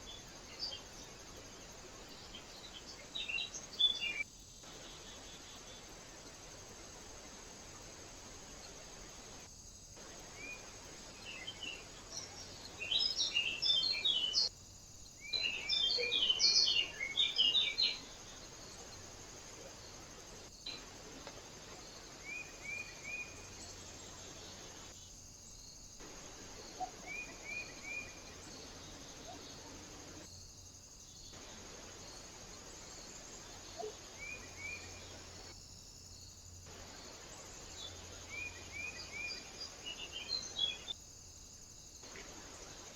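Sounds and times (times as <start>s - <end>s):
small birds chirping: 0.0s - 35.6s, 36.2s - 41.0s, 41.9s - 42.9s
steady hiss: 0.0s - 42.9s.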